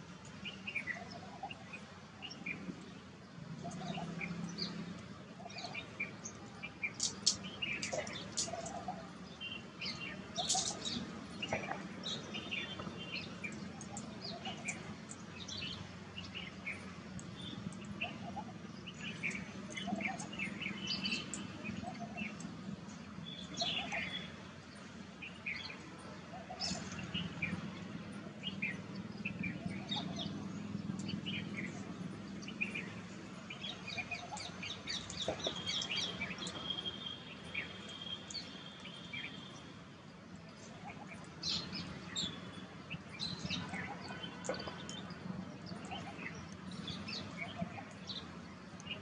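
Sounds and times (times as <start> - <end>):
small birds chirping: 0.2 - 49.0.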